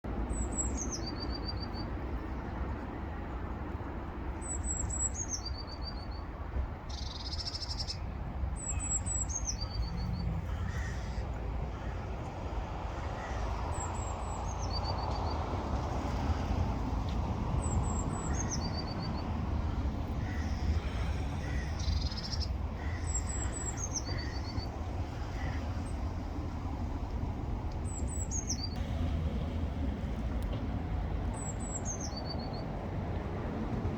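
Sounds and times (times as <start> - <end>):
steady low rumble: 28.6 - 33.9.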